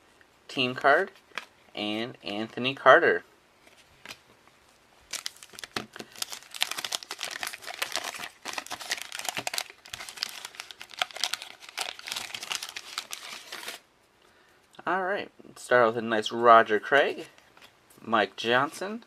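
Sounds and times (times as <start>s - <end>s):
wax paper wrapper crackling: 5.1s - 13.8s.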